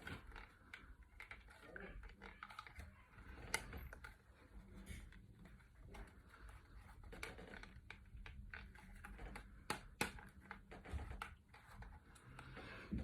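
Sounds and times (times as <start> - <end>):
clicks and taps of small objects: 6.9 - 13.0.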